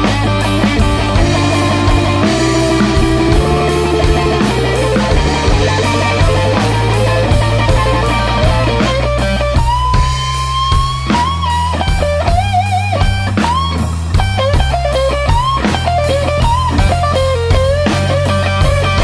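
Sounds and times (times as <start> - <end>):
bass guitar: 0.0 - 19.0
drums: 0.0 - 19.0
electric guitar solo: 0.0 - 19.0.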